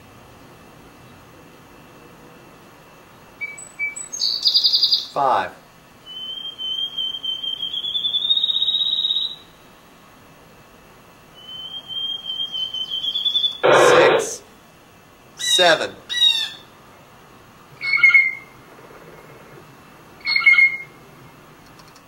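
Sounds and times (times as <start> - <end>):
birdsong with whistled trill: 3.4 - 5.1, 6.0 - 9.6, 11.4 - 13.6, 17.8 - 18.6, 20.2 - 21.0
harsh bird call: 11.4 - 14.4
short high bird notes: 13.6 - 14.4.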